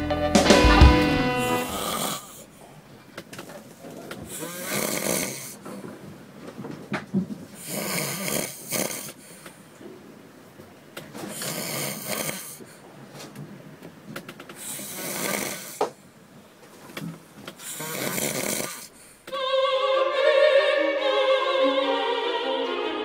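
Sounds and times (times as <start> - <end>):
man snoring: 1.3 - 2.4, 4.3 - 5.6, 7.6 - 9.2, 11.4 - 12.6, 14.6 - 15.8, 17.6 - 18.9
opera singing with orchestra: 19.3 - 23.0.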